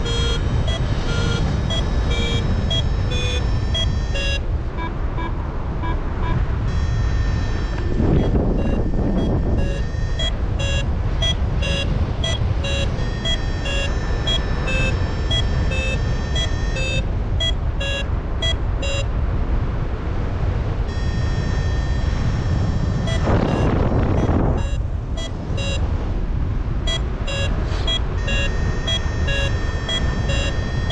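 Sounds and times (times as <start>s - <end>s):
variometer beeping: 0.0s - 19.2s, 20.9s - 26.0s, 26.8s - 30.9s
wind rushing over microphone: 0.0s - 30.9s.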